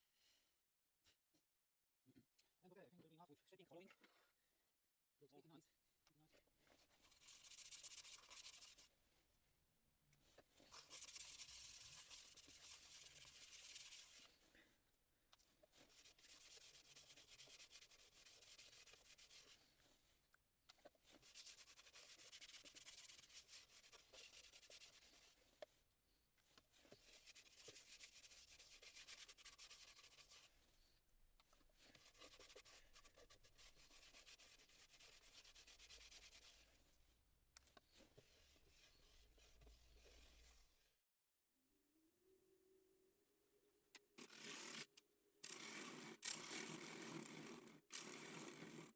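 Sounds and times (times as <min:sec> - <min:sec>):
faint rubbing on wood on lathe: 0:10.7 - 0:14.4, 0:15.7 - 0:19.7, 0:21.1 - 0:25.4, 0:26.7 - 0:30.6, 0:31.8 - 0:36.8, 0:38.0 - 0:40.8.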